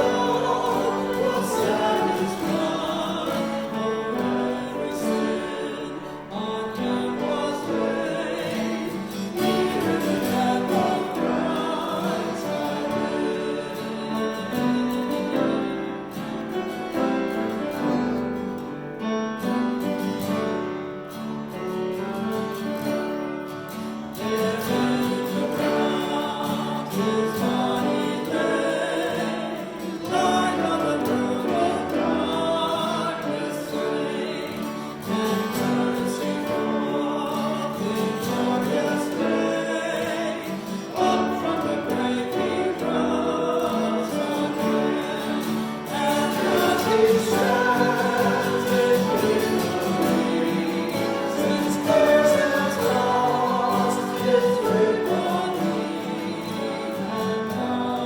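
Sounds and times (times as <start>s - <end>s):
instrumental accompaniment: 0.0s - 58.0s
voices singing a hymn: 0.0s - 58.0s.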